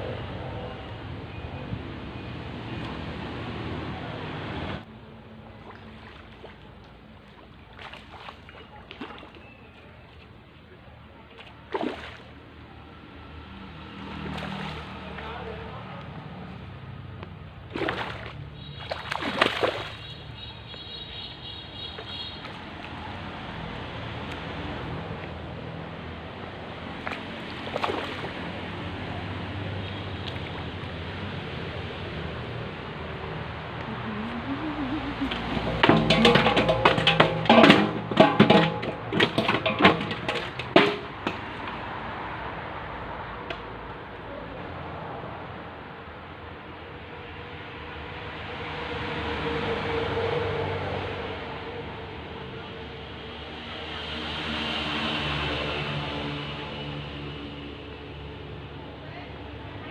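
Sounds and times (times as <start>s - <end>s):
water splashing: 5.4s - 10.1s, 11.2s - 12.6s, 13.8s - 15.8s, 17.2s - 25.4s, 26.6s - 42.4s
sharp knocks and clatter: 35.4s - 41.9s.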